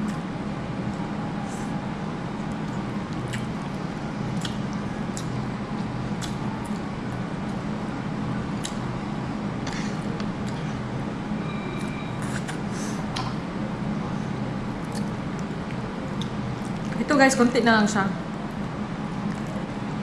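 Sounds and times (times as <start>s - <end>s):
steady low hum: 0.0s - 20.0s
chewing and lip smacks: 2.5s - 7.6s, 8.5s - 8.9s, 9.6s - 10.7s, 14.8s - 17.0s, 18.5s - 19.8s.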